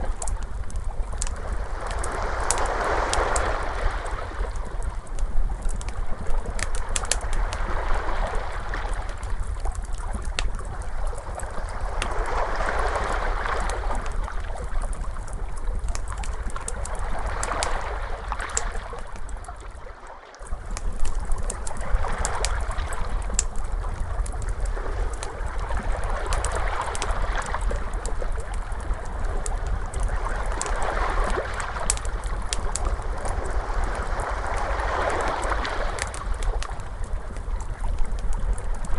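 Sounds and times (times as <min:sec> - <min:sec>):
fire crackling: 0:00.0 - 0:19.8, 0:20.4 - 0:38.9
ocean waves washing in: 0:01.4 - 0:04.7, 0:10.8 - 0:14.5, 0:24.5 - 0:37.1.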